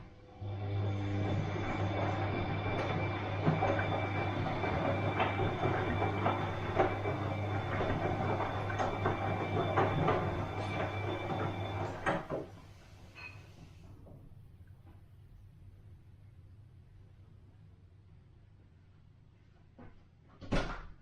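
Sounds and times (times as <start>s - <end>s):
washing machine motor hum: 0.0s - 16.0s.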